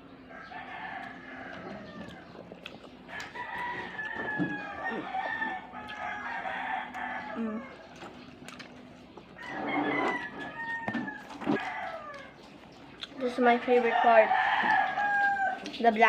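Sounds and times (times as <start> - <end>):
chickens calling: 0.0 - 16.0.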